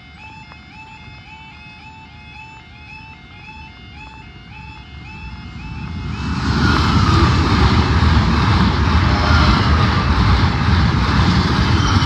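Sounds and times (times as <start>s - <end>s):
train wheels rumbling on rails: 5.1s - 12.0s.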